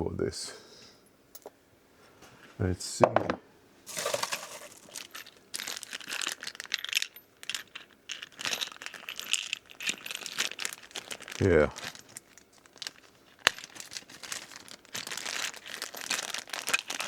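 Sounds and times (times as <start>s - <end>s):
metal screws clinking: 3.9s - 17.0s
rummaging rustling: 3.9s - 17.0s.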